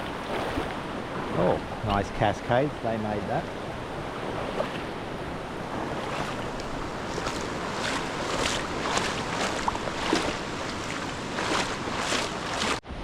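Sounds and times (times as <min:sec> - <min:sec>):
creek water rushing: 0:00.0 - 0:13.0
short splashes: 0:05.6 - 0:12.8.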